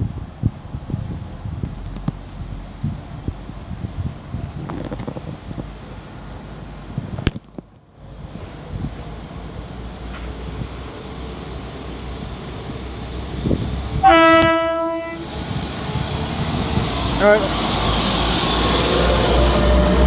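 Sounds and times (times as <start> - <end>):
wind buffeting microphone: 0.0 - 7.4, 8.1 - 20.0
train horn: 13.9 - 15.5.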